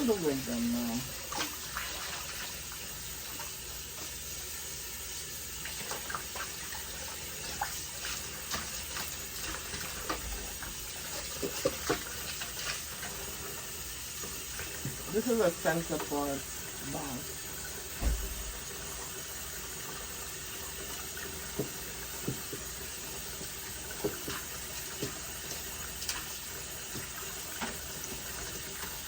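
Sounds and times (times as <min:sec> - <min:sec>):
water running from a tap: 0:00.0 - 0:29.0
small splashes and knocks: 0:07.4 - 0:13.2, 0:18.0 - 0:18.7, 0:23.9 - 0:29.0.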